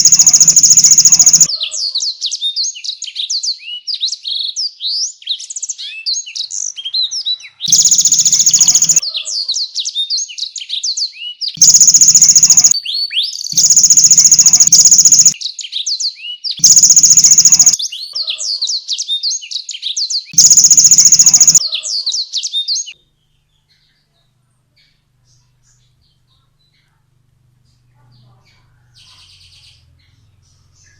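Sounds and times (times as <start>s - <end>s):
fast buzzing rattle: 0.0s - 1.5s, 7.7s - 9.0s, 11.6s - 12.8s, 13.6s - 15.4s, 16.6s - 17.8s, 20.4s - 21.6s
canary singing: 0.0s - 1.8s, 7.7s - 9.0s, 11.6s - 15.4s, 16.6s - 18.4s, 20.4s - 21.9s.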